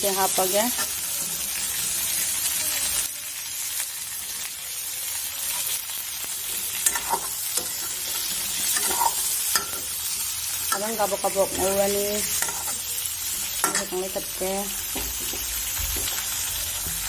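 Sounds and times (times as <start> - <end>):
curry sizzling in a pan: 0.0 - 17.0
metal spoon scraping a pan: 0.7 - 1.9, 6.3 - 15.5.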